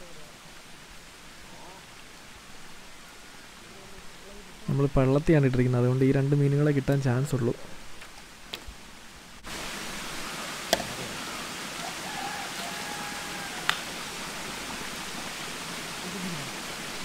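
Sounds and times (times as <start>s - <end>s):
water hissing: 9.4s - 17.0s.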